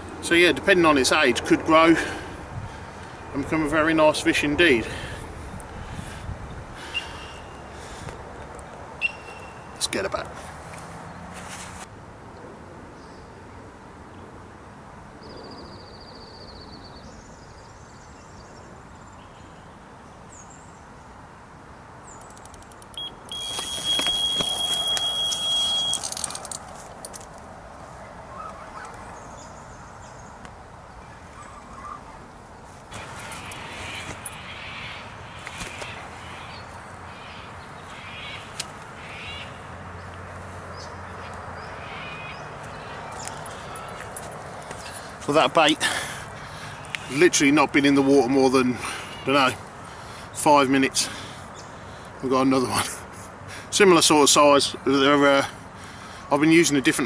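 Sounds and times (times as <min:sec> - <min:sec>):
bite alarm high tone: 0:09.0 - 0:09.8, 0:23.0 - 0:26.2.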